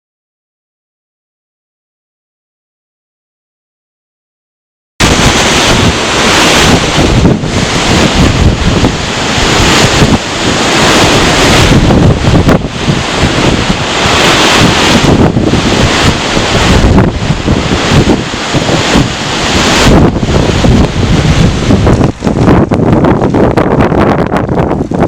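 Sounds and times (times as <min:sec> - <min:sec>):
strong wind on the sea: 0:05.0 - 0:25.0
surf breaking: 0:05.0 - 0:25.0
wind buffeting microphone: 0:05.0 - 0:25.0.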